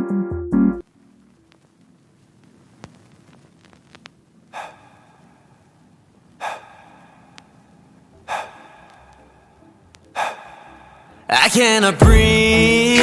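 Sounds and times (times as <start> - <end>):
sharp gasping breaths: 4.5 - 5.6, 6.4 - 11.3
faint low musical backing: 5.4 - 13.0.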